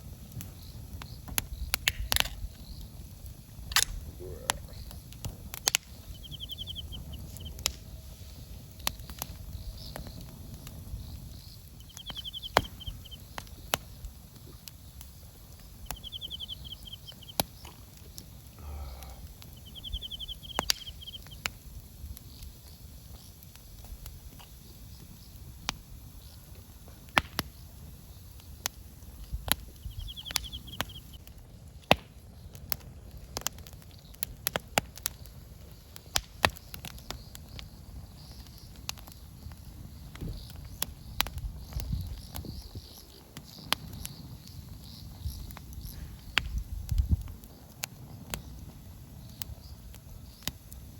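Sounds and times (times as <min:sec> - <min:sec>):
campfire crackling and popping: 0:00.0 - 0:50.9
bird trilled call: 0:05.9 - 0:07.5, 0:11.7 - 0:13.3, 0:15.7 - 0:17.5, 0:19.4 - 0:21.4, 0:29.8 - 0:31.2.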